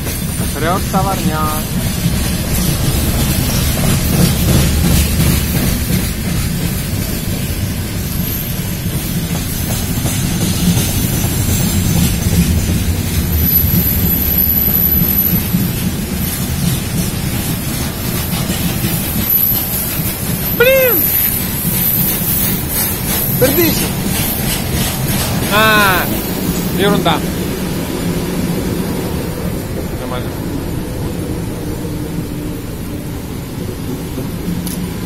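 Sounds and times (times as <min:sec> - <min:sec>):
freight train wheels rumbling: 0:00.0 - 0:35.0.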